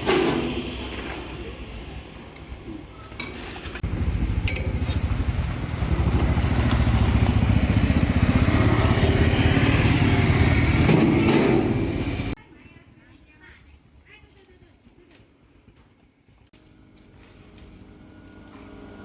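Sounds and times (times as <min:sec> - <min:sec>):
engine running with low pulsing: 0:00.3 - 0:12.4, 0:16.6 - 0:19.0.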